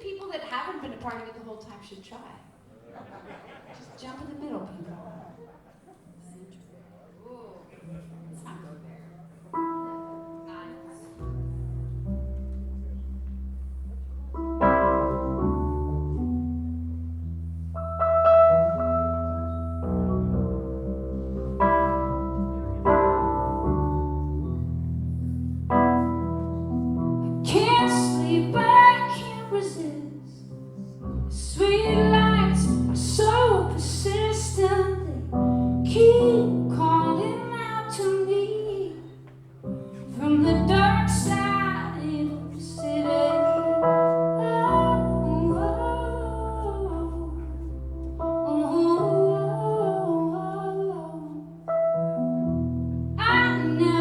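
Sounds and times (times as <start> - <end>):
slow piano chords: 6.8 - 54.0
woman singing: 27.3 - 30.5, 31.3 - 39.2, 40.0 - 47.7, 48.4 - 51.5, 53.2 - 54.0.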